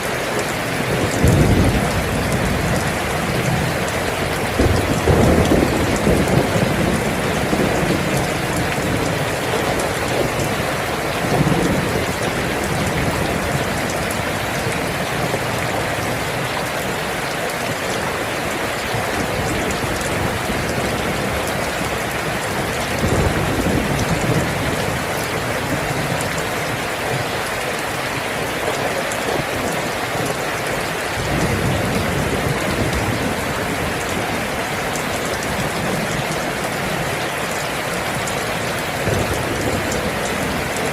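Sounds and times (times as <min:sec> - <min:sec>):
heavy rain falling: 0:00.0 - 0:40.9
thunder rolling: 0:00.4 - 0:15.4, 0:19.1 - 0:27.2, 0:38.7 - 0:40.9.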